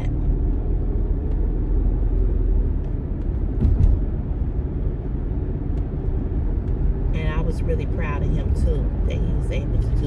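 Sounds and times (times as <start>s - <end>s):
engine and road rumble: 0.0s - 10.0s.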